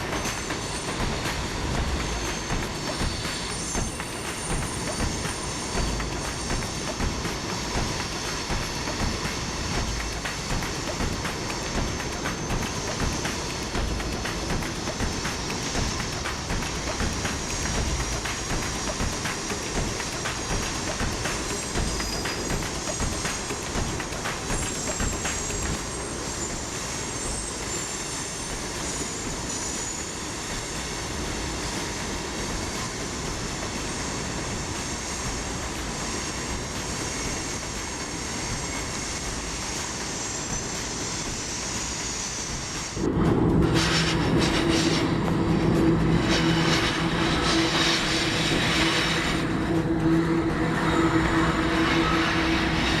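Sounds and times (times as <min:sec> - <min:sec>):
steady low tones: 0:00.0 - 0:26.0, 0:43.0 - 0:53.0
train wheels rumbling on rail: 0:00.0 - 0:53.0.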